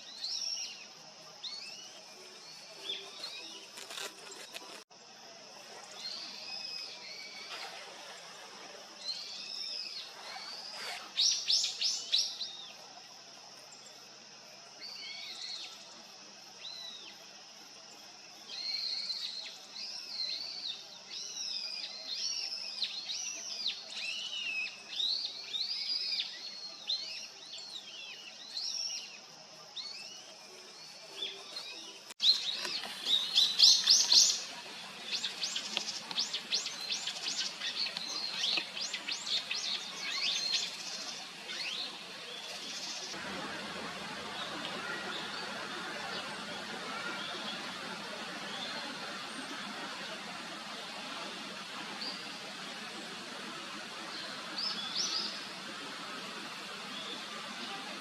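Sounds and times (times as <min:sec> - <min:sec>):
small birds chirping: 0:29.8 - 0:43.2.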